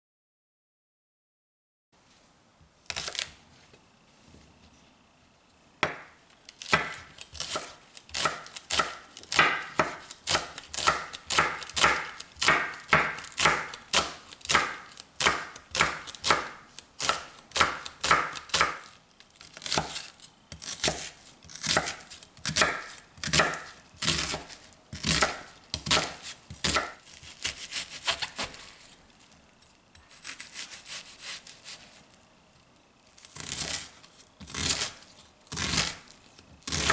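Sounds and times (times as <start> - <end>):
knife chopping on cutting board: 5.8 - 18.9, 19.6 - 28.7, 30.0 - 31.9, 33.4 - 36.0, 36.6 - 36.9.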